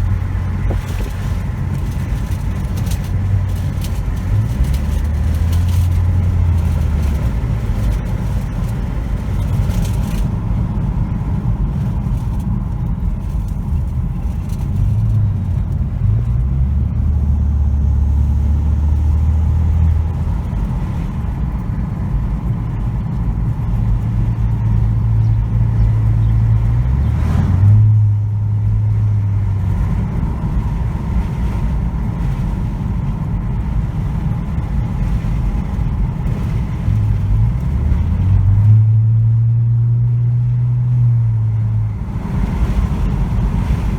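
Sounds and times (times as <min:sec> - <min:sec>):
car exhaust drone: 0:00.0 - 0:43.9.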